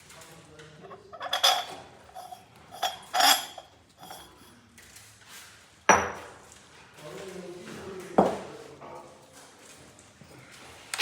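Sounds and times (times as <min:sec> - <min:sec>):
metal objects clanking: 0:00.9 - 0:04.4
metallic ring: 0:01.1 - 0:04.5.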